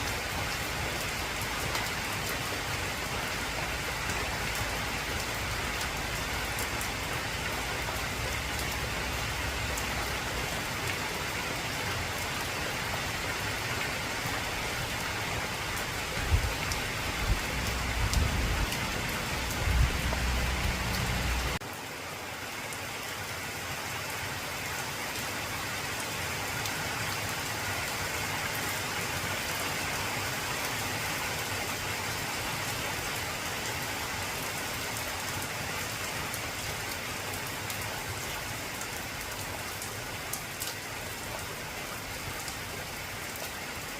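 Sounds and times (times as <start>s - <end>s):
heavy rain on a tin roof: 0.0s - 43.9s.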